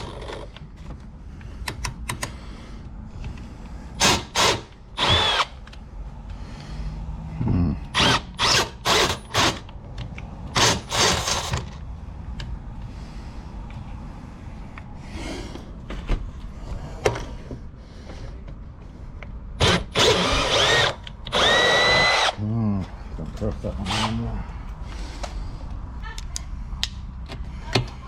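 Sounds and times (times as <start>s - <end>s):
power drill running: 4.0s - 5.6s, 8.0s - 9.6s, 10.6s - 11.6s, 19.6s - 22.4s, 23.9s - 24.2s
drill clicks: 4.0s - 5.8s, 19.6s - 22.4s.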